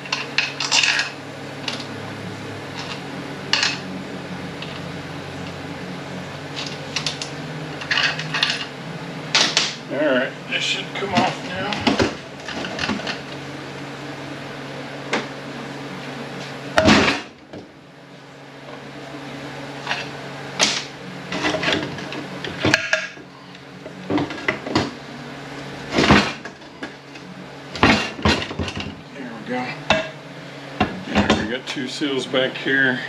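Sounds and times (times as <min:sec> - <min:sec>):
metal parts clunking: 0:00.0 - 0:01.8, 0:06.6 - 0:08.7
steady low hum: 0:00.0 - 0:33.0.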